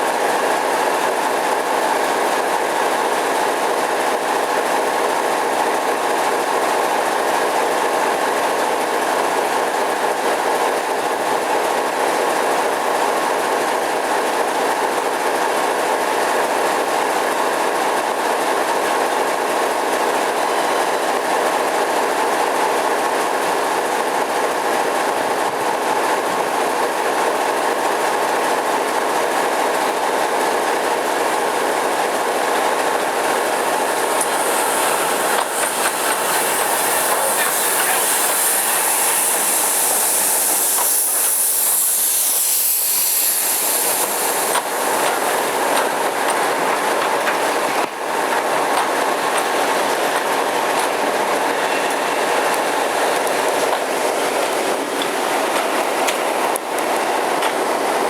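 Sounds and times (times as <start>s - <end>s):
high steam hiss: 15.0s - 58.0s
train wheels clattering over rail joints: 28.5s - 58.0s.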